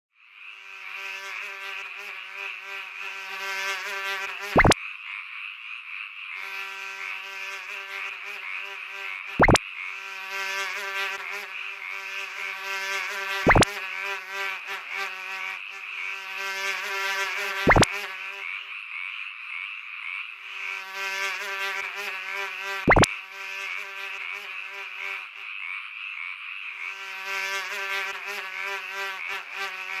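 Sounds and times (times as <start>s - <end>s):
frogs croaking: 0.2s - 1.1s, 4.6s - 7.3s, 8.0s - 10.0s, 13.5s - 13.7s, 17.7s - 20.7s, 22.9s - 23.2s, 24.1s - 27.1s
insect-like buzz: 0.2s - 4.8s, 6.2s - 30.0s
short blips falling in pitch: 4.6s - 4.8s, 9.4s - 9.6s, 13.5s - 13.7s, 17.7s - 17.9s, 22.9s - 23.1s.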